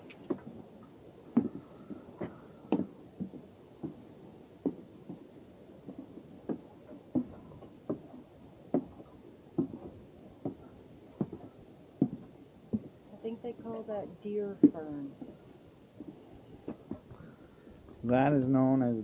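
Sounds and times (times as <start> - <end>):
footsteps walking: 5.9 - 13.5.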